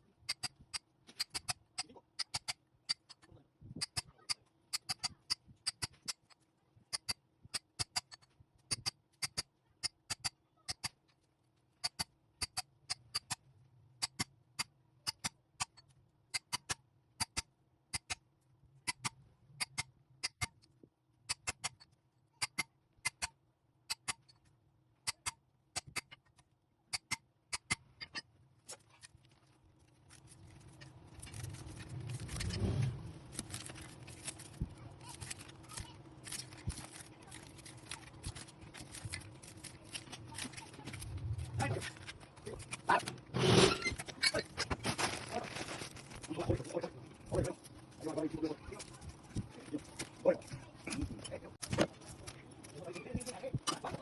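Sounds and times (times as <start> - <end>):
wire scraping and rustling: 28.6 - 54.0.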